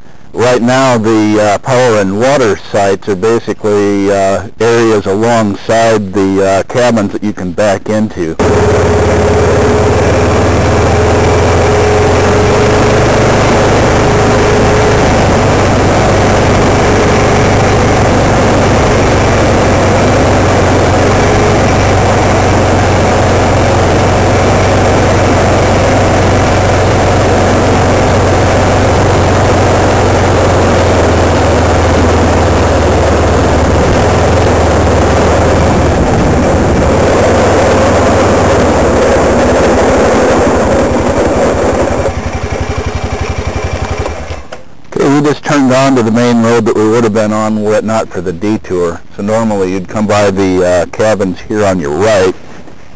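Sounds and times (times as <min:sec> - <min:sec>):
vehicle engine running: 0:08.4 - 0:45.3.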